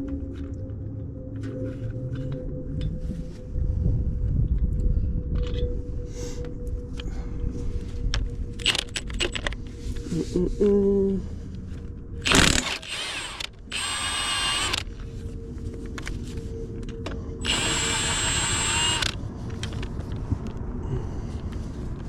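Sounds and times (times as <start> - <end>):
impact wrench running: 12.2 - 14.9, 17.4 - 19.2.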